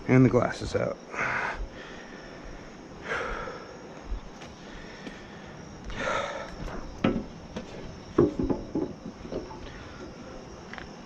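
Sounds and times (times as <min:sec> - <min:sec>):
man breathing out hard: 0:01.1 - 0:03.9, 0:04.6 - 0:06.8.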